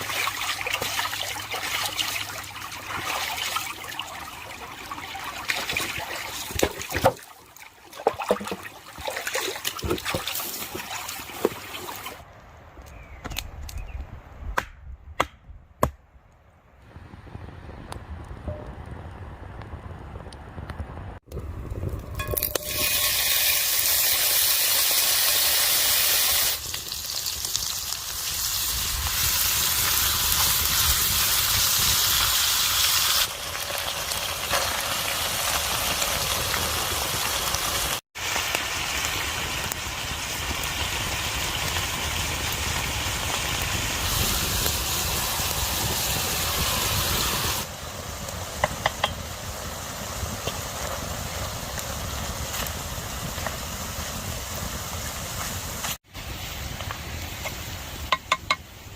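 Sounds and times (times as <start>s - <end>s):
rushing hiss of outdoor noise: 22.6s - 58.9s.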